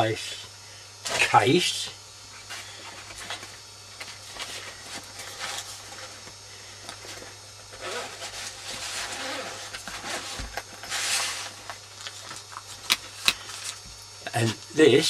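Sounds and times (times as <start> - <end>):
steady low hum: 10.1 - 15.0.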